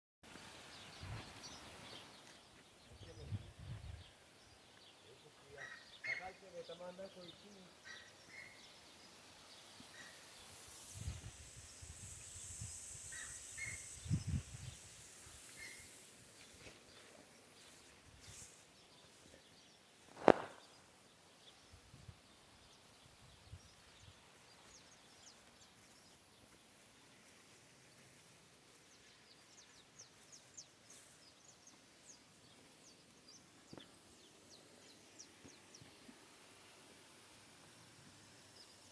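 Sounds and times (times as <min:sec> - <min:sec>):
steady faint hiss: 0:00.3 - 0:38.9
bird chirps: 0:00.4 - 0:26.6
sprinklers spraying: 0:04.9 - 0:19.4, 0:22.4 - 0:28.9, 0:33.0 - 0:38.9.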